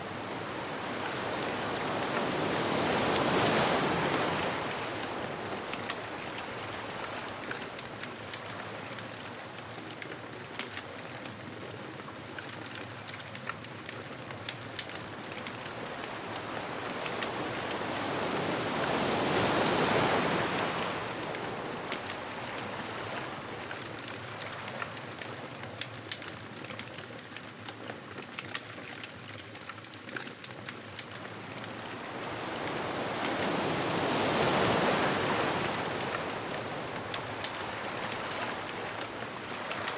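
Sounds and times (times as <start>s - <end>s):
ocean waves breaking: 0.0s - 8.4s, 14.9s - 25.1s, 31.2s - 39.9s
bonfire crackling: 0.1s - 39.9s.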